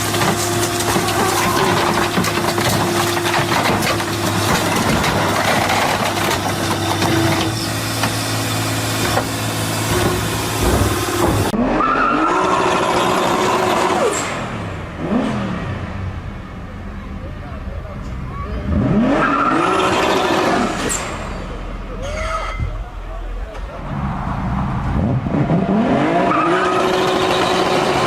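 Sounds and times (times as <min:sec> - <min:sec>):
engine revving: 0:00.0 - 0:16.2, 0:18.5 - 0:21.8, 0:23.6 - 0:28.0
car engine running loudly: 0:00.0 - 0:22.0.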